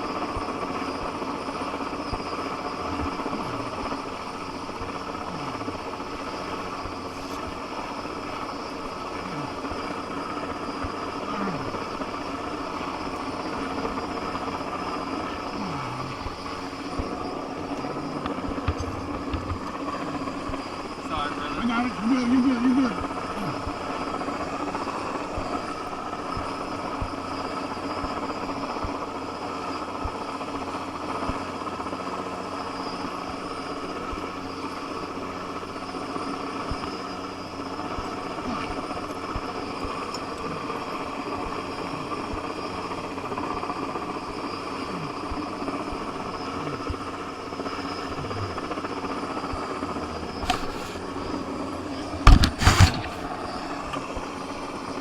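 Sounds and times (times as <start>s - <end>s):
helicopter drone: 0.0s - 55.0s
sharp knocks: 52.2s - 53.2s.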